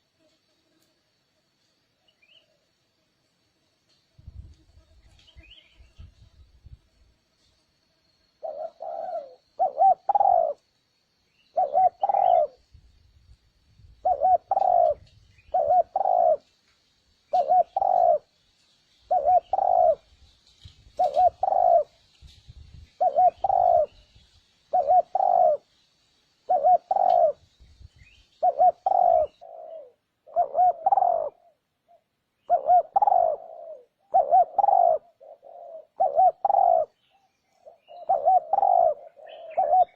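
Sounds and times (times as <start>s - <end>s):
dove cooing: 8.4s - 10.7s, 11.5s - 12.6s, 14.0s - 16.5s, 17.3s - 18.3s, 19.1s - 20.1s, 20.9s - 22.0s, 22.9s - 24.1s, 24.7s - 25.7s, 26.4s - 27.5s, 28.4s - 37.0s, 37.6s - 39.9s.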